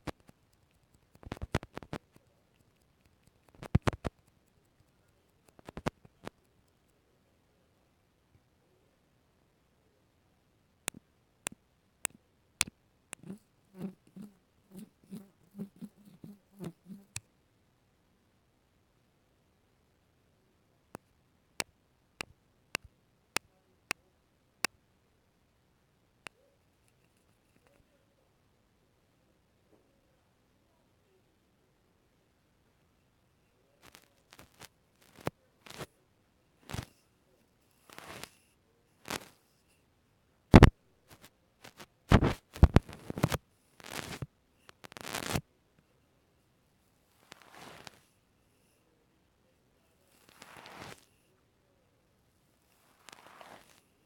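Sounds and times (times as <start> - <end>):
sharp crisp taps: 0.0 - 4.4
rustling: 0.0 - 6.6, 36.6 - 39.8, 40.6 - 45.4, 47.0 - 48.2, 50.0 - 51.3, 52.6 - 54.0
crinkling: 0.0 - 6.8, 40.6 - 45.4
soft handling sounds: 0.0 - 7.2, 26.3 - 28.1, 33.0 - 39.9, 40.6 - 54.0
soft brushing: 13.2 - 17.2, 36.7 - 39.8, 46.9 - 48.8, 49.9 - 51.3, 52.6 - 54.0.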